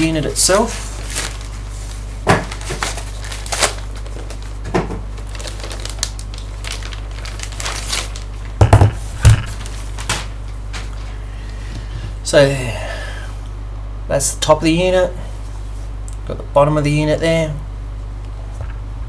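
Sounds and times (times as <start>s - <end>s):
packaging crinkling: 0.0s - 11.9s
loud thumps: 8.6s - 9.8s
low hum: 18.3s - 19.0s.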